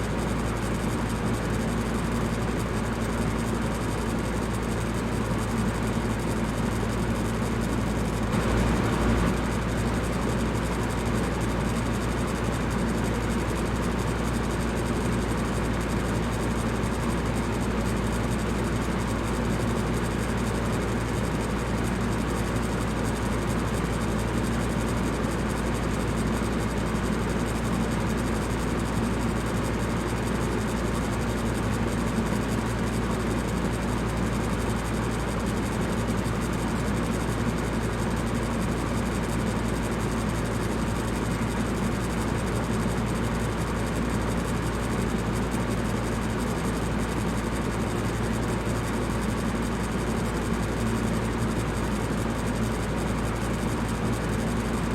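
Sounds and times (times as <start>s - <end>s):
electric fan whooshing: 8.3s - 10.2s.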